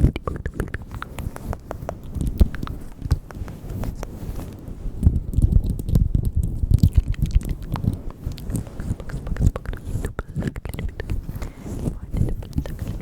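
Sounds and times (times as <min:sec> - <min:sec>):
wet mouth clicks and smacks: 0:00.0 - 0:04.2, 0:05.0 - 0:13.0
low thuds and rumbling: 0:05.0 - 0:10.2.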